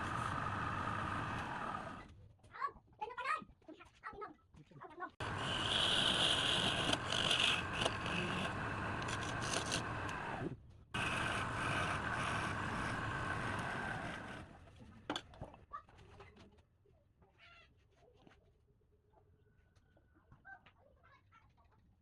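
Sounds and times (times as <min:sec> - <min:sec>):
power tool scraping wood: 0:00.0 - 0:02.0, 0:05.2 - 0:14.6.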